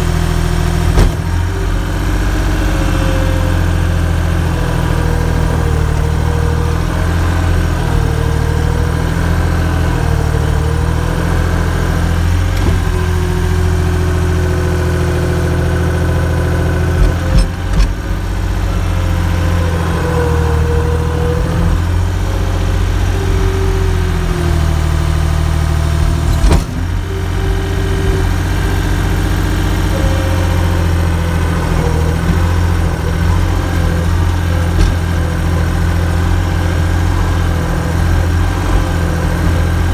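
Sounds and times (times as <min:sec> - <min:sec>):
engine idling: 0:00.0 - 0:39.9
wavering whine: 0:17.4 - 0:34.8.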